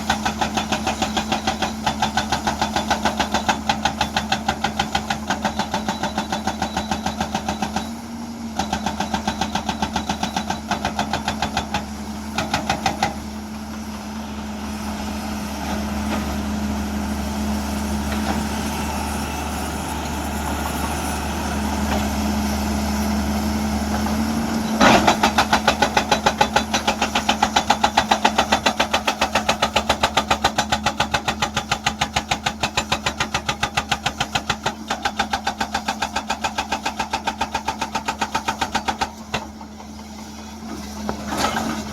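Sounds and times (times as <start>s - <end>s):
hydraulic breaker hammer pounding rock: 0.0s - 14.0s, 23.9s - 41.9s
diesel engine running: 0.0s - 41.9s.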